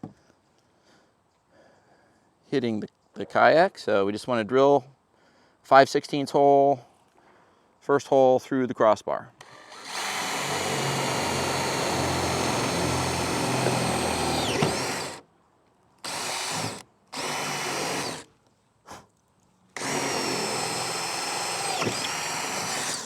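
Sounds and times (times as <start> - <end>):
electric drill boring metal: 9.4 - 15.2, 16.0 - 18.3, 19.8 - 23.0.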